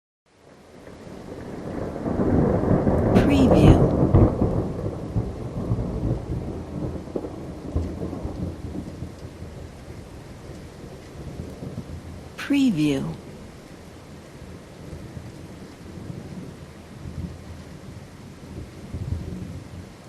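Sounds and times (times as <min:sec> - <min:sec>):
steady rain: 0:00.3 - 0:20.0
thunder rumbling and cracking: 0:00.8 - 0:12.3.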